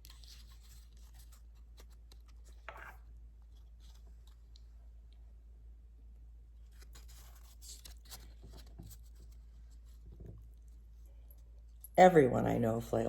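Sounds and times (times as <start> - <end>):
paper pages rustling and turning: 0.0 - 4.5, 6.6 - 11.7
low steady hum: 0.0 - 13.0.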